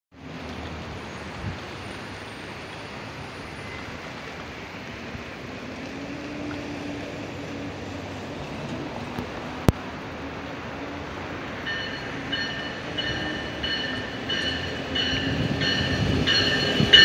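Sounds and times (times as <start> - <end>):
train approaching rushing noise: 0.7 - 17.0.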